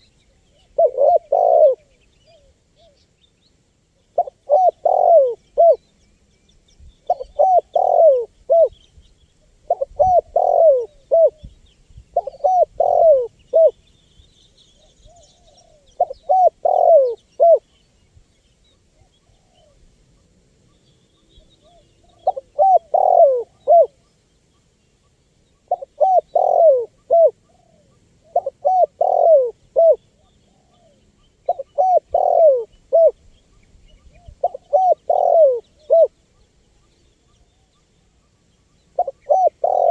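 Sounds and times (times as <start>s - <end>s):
dove cooing: 0.0s - 3.0s, 4.2s - 5.8s, 7.1s - 8.8s, 9.6s - 11.5s, 12.1s - 13.8s, 14.8s - 17.7s, 21.4s - 24.1s, 25.6s - 33.2s, 34.0s - 36.9s, 38.8s - 39.9s
faint small bird chirps: 0.0s - 39.9s.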